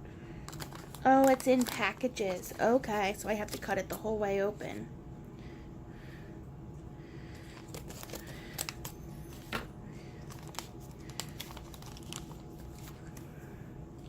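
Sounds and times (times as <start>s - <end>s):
packet crinkling: 0.4s - 3.7s, 7.4s - 9.5s, 10.2s - 13.3s.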